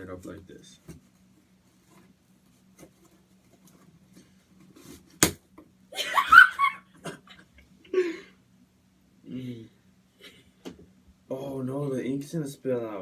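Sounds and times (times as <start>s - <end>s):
tape and cardboard tearing: 4.8s - 5.4s.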